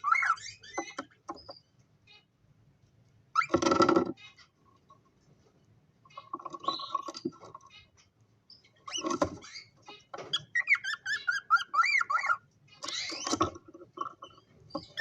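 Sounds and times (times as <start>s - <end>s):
cockatiels chirping and calling: 0.0s - 2.3s, 6.1s - 15.0s.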